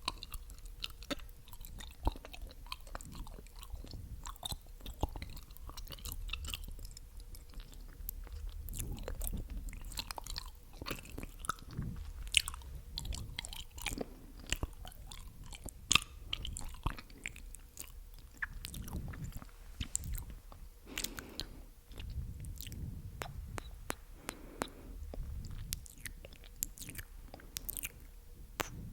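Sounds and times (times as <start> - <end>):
mouth pops: 0.0 - 28.9
wet mouth clicks and smacks: 0.0 - 28.9.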